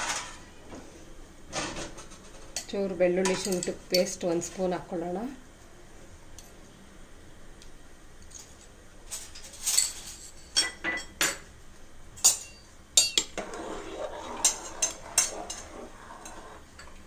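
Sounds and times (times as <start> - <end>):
metal spoon clinking on cookware: 3.2 - 4.2, 12.2 - 13.4.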